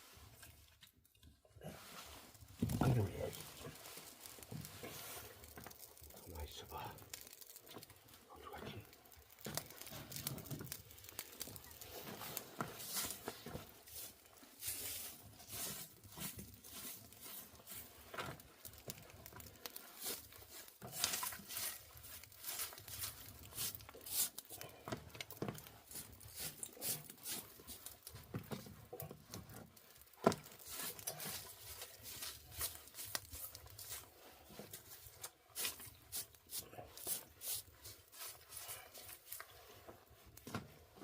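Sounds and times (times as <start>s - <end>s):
hands rummaging and rustling: 1.8s - 6.7s.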